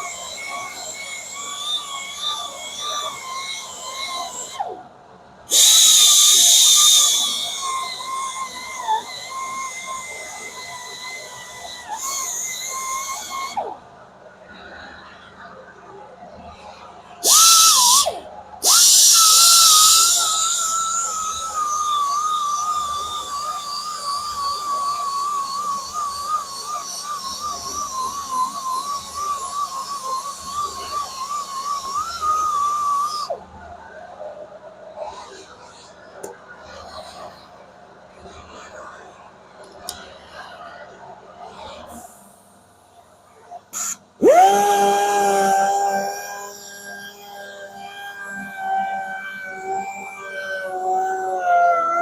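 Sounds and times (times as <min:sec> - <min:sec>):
power grinder whining on metal: 0:00.0 - 0:34.3, 0:43.6 - 0:52.0.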